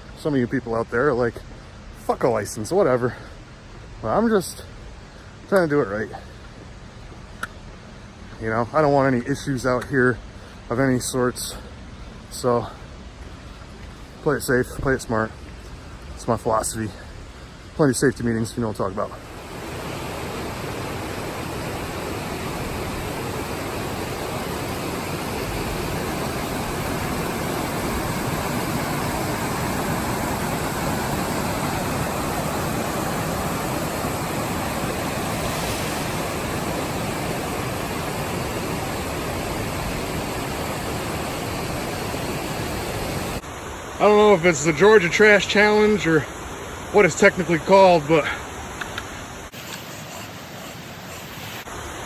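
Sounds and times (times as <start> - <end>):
waterfall rushing: 18.9 - 52.0.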